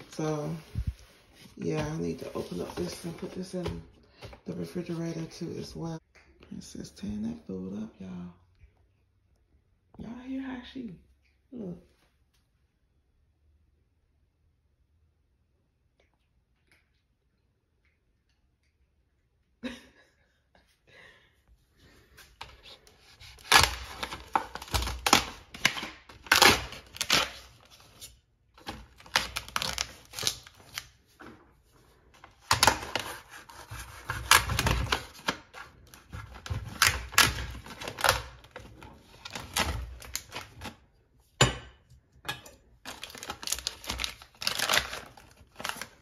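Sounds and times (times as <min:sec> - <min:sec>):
plastic wrap crinkling: 0:00.0 - 0:03.6, 0:22.4 - 0:31.1, 0:32.2 - 0:40.8, 0:42.8 - 0:46.0.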